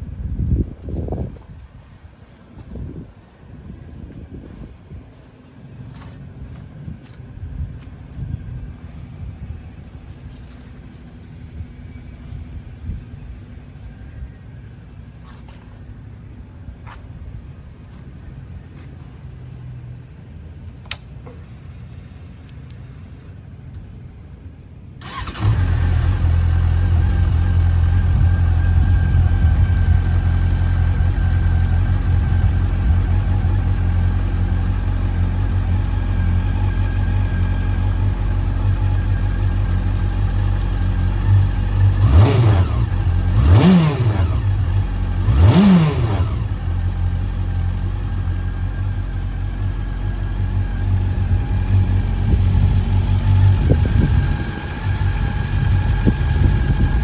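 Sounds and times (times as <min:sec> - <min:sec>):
motorcycle engine revving: 0:25.0 - 0:57.0
motorcycle engine idling: 0:25.1 - 0:57.0.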